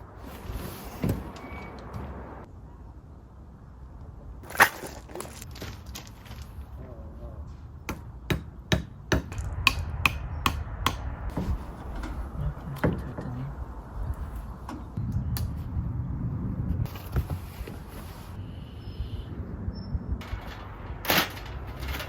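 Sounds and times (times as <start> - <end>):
hammer knocking tent pegs: 7.9 - 12.2.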